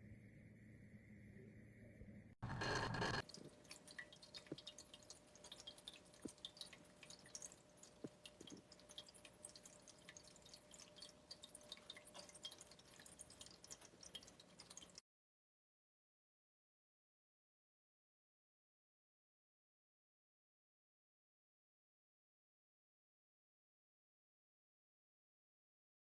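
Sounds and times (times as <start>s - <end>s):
water dripping and trickling: 3.2s - 15.0s.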